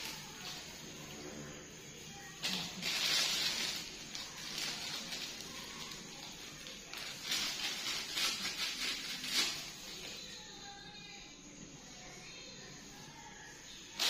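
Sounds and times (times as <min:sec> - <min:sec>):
rustling and scraping: 0:02.3 - 0:10.2.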